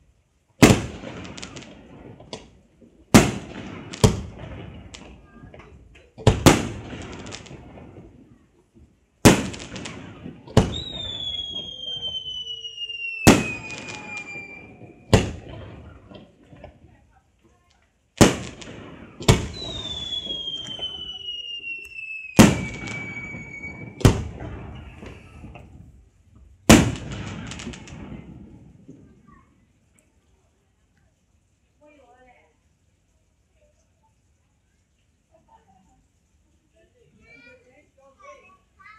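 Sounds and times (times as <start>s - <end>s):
firework shell bursts: 9.2s - 16.3s, 18.2s - 25.7s
firework whistles sliding down: 10.6s - 15.2s, 19.4s - 25.6s.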